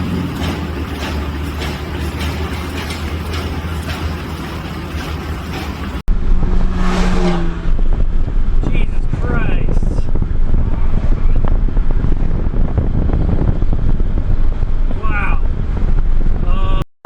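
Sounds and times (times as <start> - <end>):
car engine hum: 0.0 - 9.0
road noise: 0.0 - 16.6.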